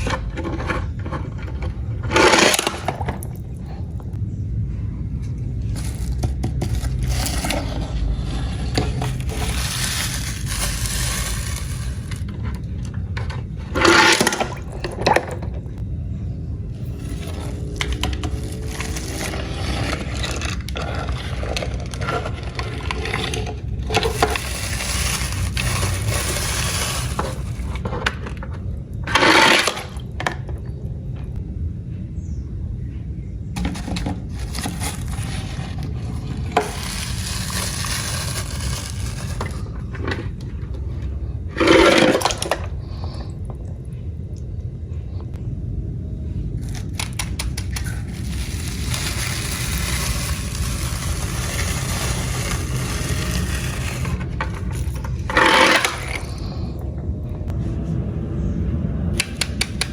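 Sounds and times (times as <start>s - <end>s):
toy cars scraping and rattling: 0.0s - 3.4s, 5.7s - 12.7s, 13.3s - 15.5s, 16.8s - 28.4s, 29.1s - 30.0s, 33.6s - 40.8s, 41.6s - 42.8s, 46.7s - 56.7s, 59.2s - 59.9s
steady low rumble: 0.0s - 59.9s.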